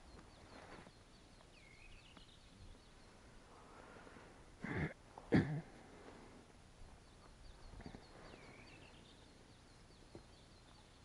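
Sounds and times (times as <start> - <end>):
bird chirping: 0.0 - 3.8, 6.8 - 11.0.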